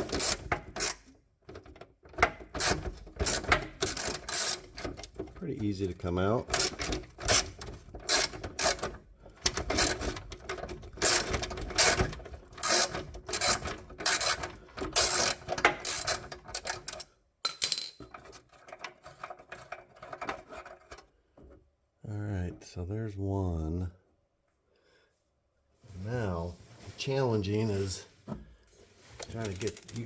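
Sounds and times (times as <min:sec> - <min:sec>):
ratchet wrench clicking: 0:02.6 - 0:04.7, 0:12.6 - 0:17.0.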